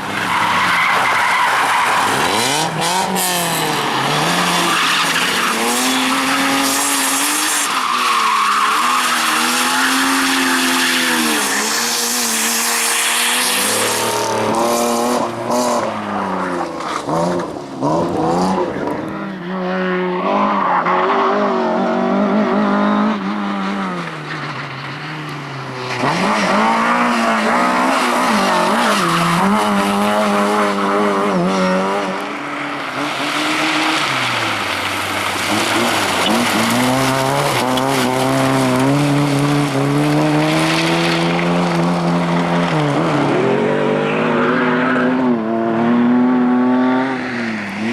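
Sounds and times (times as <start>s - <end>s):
tyres squealing and skidding: 0.0s - 14.6s, 23.3s - 45.4s
rally car engines revving: 0.0s - 47.9s.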